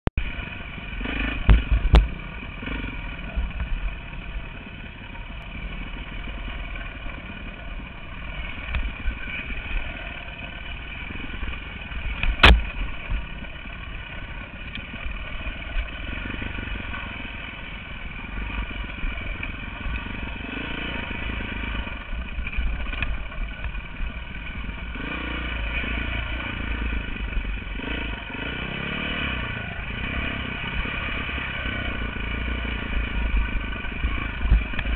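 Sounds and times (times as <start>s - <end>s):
dirt bike engine running: 0.2s - 34.9s
sharp knocks: 12.2s - 12.8s.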